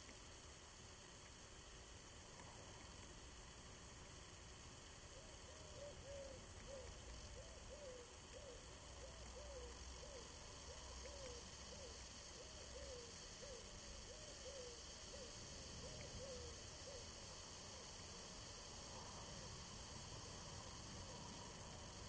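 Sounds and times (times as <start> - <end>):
bird hooting: 5.2 - 17.9.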